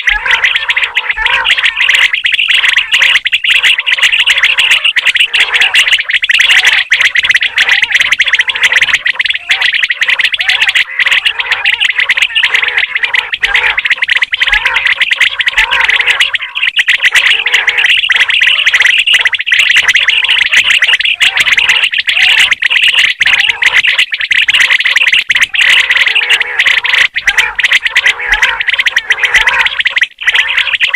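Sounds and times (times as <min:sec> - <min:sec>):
quail chirping chorus: 0:00.0 - 0:30.9.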